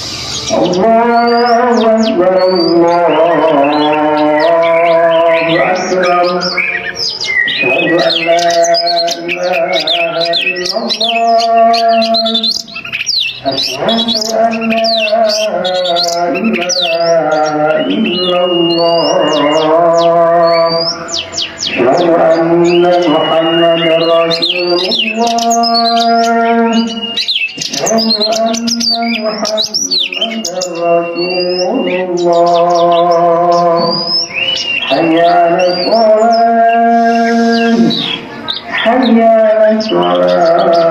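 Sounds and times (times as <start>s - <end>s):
chant-like melody of long tones: 0.0s - 40.9s
magpie-robin singing: 0.0s - 40.9s
bird singing whistles and clicks: 22.7s - 35.0s.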